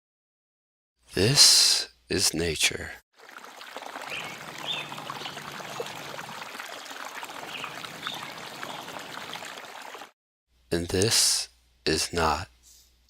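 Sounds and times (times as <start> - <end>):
stream water trickling: 3.2 - 10.2.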